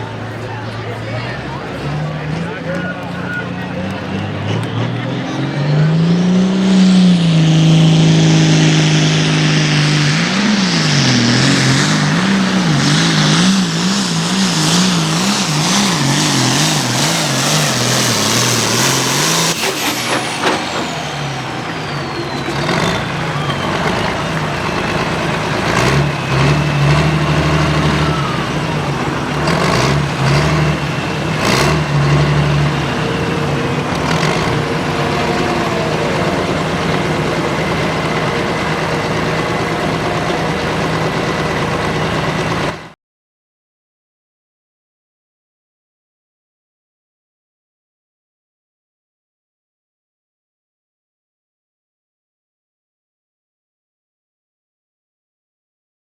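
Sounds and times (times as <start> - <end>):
tractor diesel engine revving: 0.0 - 43.0
high turbo whistle: 5.9 - 42.8.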